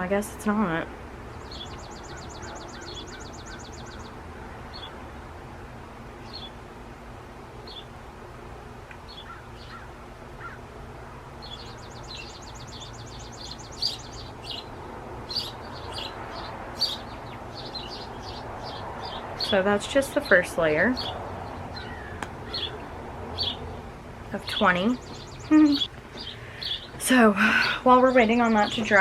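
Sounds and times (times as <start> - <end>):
low outdoor hum: 0.0 - 29.0
small birds trilling and chirping: 0.7 - 6.6, 7.6 - 8.0, 9.0 - 29.0.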